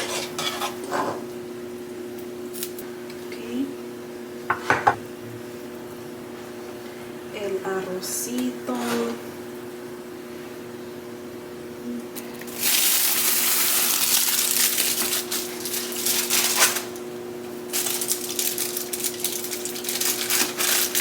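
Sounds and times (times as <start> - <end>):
scraping and scooping in pot: 8.7 - 9.2.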